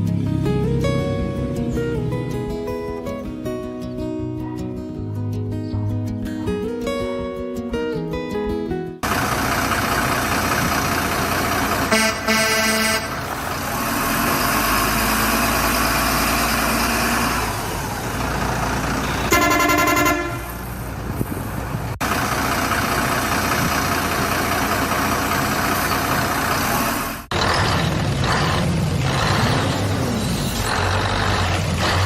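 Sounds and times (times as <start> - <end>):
truck engine running: 0.0 - 3.8, 9.0 - 32.0
truck horn honking: 11.6 - 13.5, 19.0 - 20.7.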